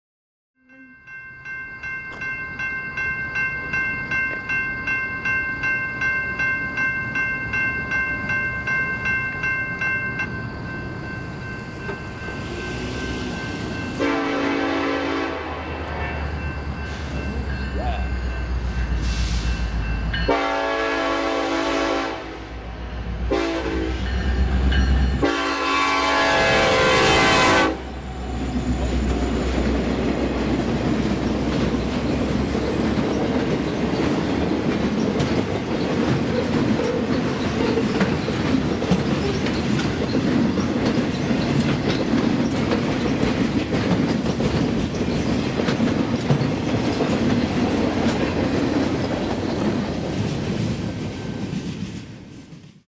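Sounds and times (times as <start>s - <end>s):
locomotive horn blasts: 14.0s - 16.3s, 20.3s - 24.3s, 25.2s - 28.1s
train wheels clattering over rails: 28.2s - 52.8s.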